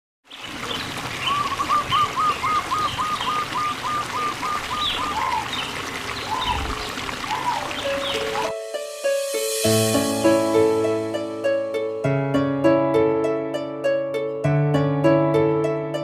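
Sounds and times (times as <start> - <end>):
trickling water: 0.2 - 8.5
bird calling: 0.3 - 8.5
birds chirping: 0.3 - 8.5.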